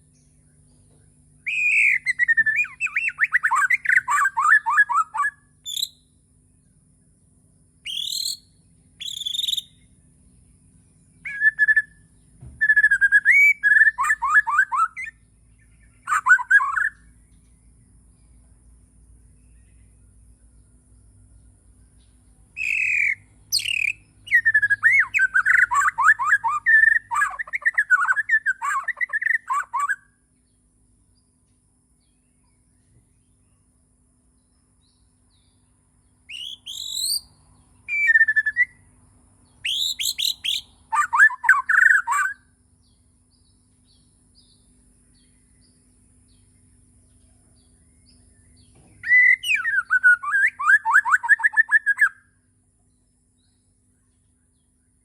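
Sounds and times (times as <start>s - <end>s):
bird singing whistled phrases: 1.4s - 6.1s, 7.8s - 9.8s, 11.2s - 15.2s, 15.8s - 17.1s, 22.6s - 30.1s, 36.3s - 37.3s, 37.9s - 38.8s, 39.6s - 42.5s, 49.0s - 52.3s.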